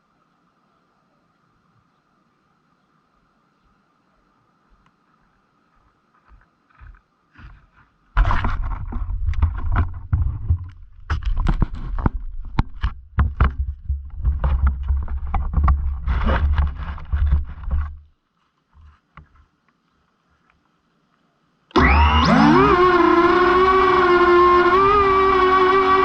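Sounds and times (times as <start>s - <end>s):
sharp knocks and clicks: 8.2s - 18.0s.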